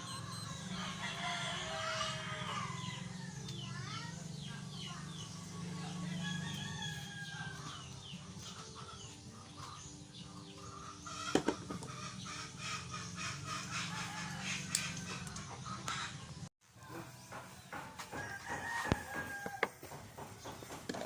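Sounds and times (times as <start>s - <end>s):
chickens clucking: 0.0s - 21.0s
rooster crowing: 0.3s - 3.3s, 6.1s - 7.7s, 13.8s - 15.4s, 18.2s - 19.9s.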